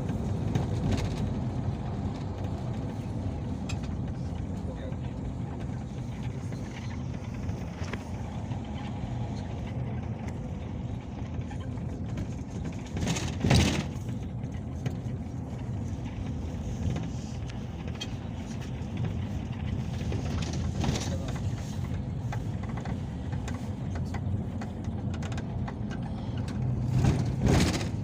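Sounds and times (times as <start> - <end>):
engine and road rumble: 0.0 - 28.0.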